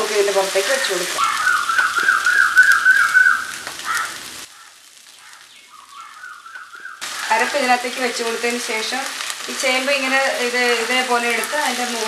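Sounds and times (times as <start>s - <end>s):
food sizzling in oil: 0.0s - 12.0s
high warbling whistle tone: 1.2s - 3.5s.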